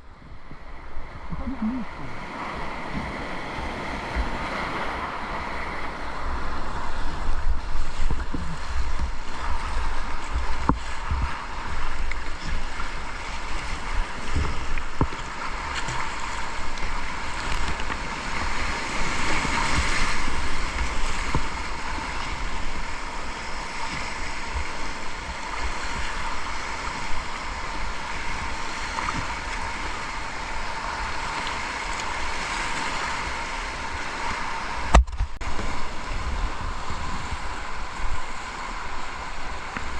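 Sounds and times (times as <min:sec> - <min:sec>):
wind buffeting microphone: 0:33.6 - 0:39.9.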